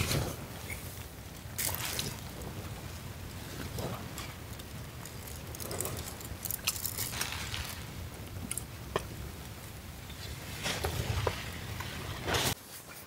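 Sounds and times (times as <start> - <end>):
gear clicking and rustling: 0.0 - 8.7.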